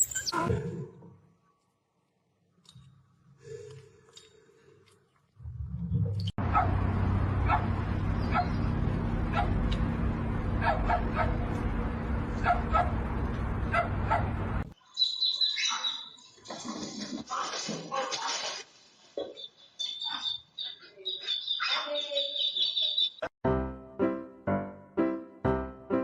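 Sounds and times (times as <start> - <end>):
high chirp: 0.0 - 0.5, 14.8 - 16.2
dog barking: 6.4 - 6.8, 7.4 - 7.7, 8.3 - 8.6, 9.3 - 9.6, 10.6 - 11.4, 12.4 - 13.0, 13.7 - 14.3, 15.6 - 16.1
steady low hum: 6.7 - 14.8.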